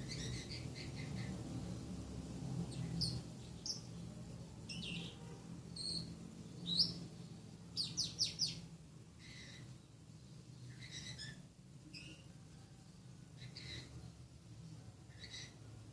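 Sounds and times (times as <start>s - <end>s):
bird chirping and singing: 0.0s - 1.5s, 2.7s - 4.0s, 4.7s - 7.0s, 7.8s - 8.6s, 10.7s - 12.3s, 13.4s - 14.0s, 15.1s - 15.6s.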